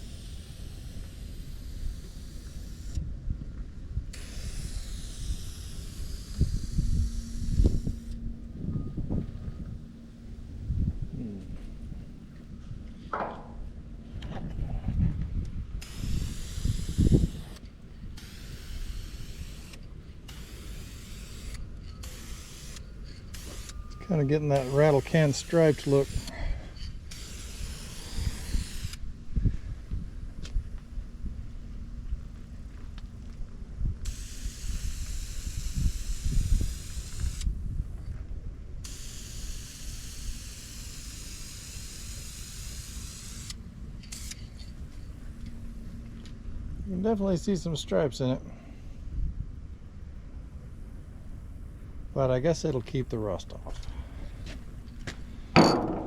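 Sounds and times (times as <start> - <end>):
spray paint can hissing: 0.0 - 3.0, 4.1 - 8.2, 15.8 - 17.6, 18.2 - 23.8, 24.5 - 26.5, 27.1 - 29.0, 34.0 - 37.5, 38.8 - 44.7
wind rumbling on microphone: 0.0 - 24.0, 26.0 - 39.6, 48.8 - 56.0.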